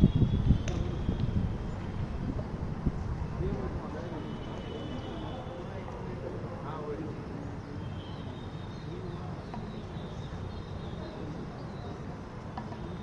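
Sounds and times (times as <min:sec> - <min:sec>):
faint distant voices: 0:00.0 - 0:13.0
small birds chirping: 0:04.2 - 0:13.0.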